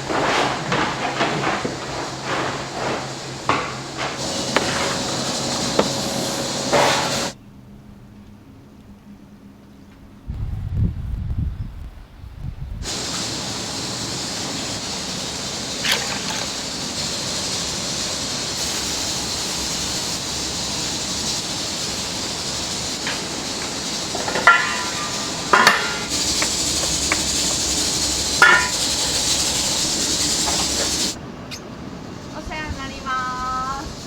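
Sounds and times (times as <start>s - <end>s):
cooking hiss: 0.0s - 7.4s, 12.8s - 34.0s
utensils clinking: 15.6s - 31.2s.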